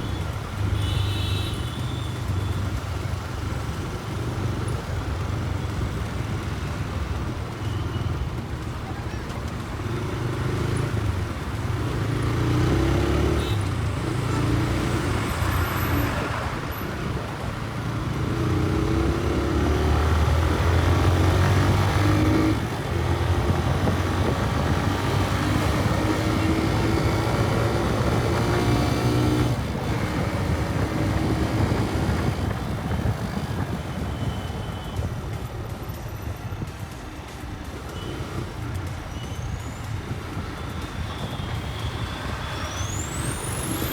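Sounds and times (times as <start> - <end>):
road and wind rush: 0.0 - 43.9
motorcycle engine accelerating: 18.0 - 34.2.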